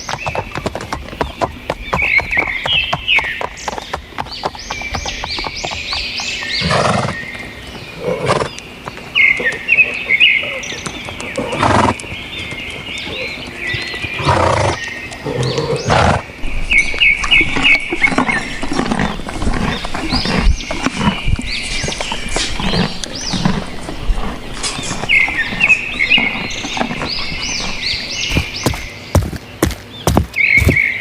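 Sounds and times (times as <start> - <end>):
horses whinnying: 6.6 - 7.2, 8.0 - 8.5, 10.4 - 12.1, 13.0 - 28.6.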